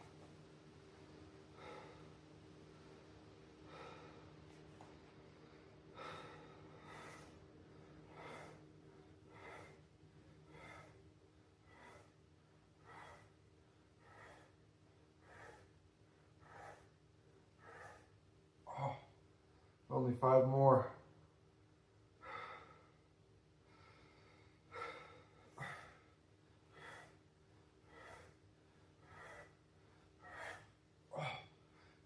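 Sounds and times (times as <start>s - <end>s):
man breathing out hard: 5.9s - 7.4s, 8.0s - 8.7s, 9.3s - 11.0s, 11.6s - 12.2s, 12.8s - 13.4s, 15.2s - 15.8s, 23.7s - 27.2s, 27.8s - 28.4s, 29.0s - 29.6s.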